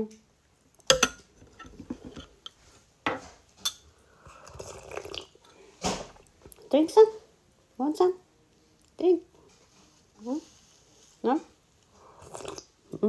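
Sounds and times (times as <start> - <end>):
tableware clinking: 0.9 - 2.3, 3.1 - 3.9
tableware rattling and scraping: 0.9 - 2.4.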